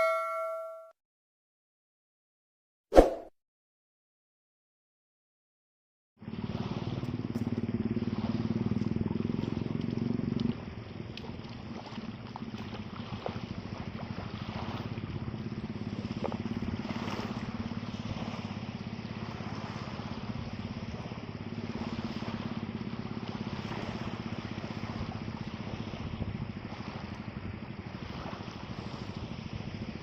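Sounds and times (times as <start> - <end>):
small engine running: 6.2 - 30.0
water noise: 6.2 - 30.0
wind: 6.2 - 30.0.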